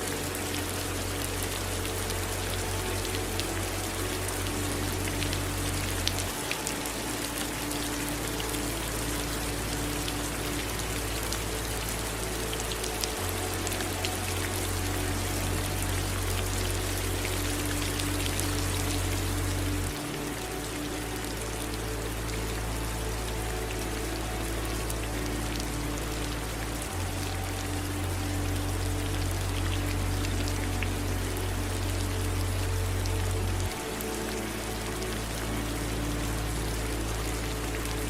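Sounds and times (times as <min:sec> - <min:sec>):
low steady rumble: 0:00.0 - 0:38.0
raindrops ticking: 0:00.0 - 0:38.0
running water: 0:00.0 - 0:38.0
steady rain falling: 0:00.0 - 0:38.0.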